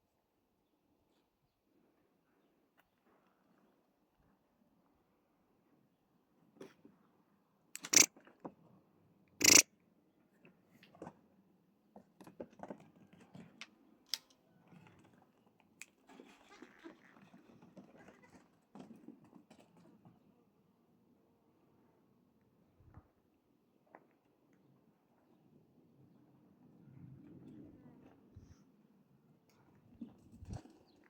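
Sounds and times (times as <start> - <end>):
loud sharp noises: 7.8 - 8.1, 9.4 - 9.6.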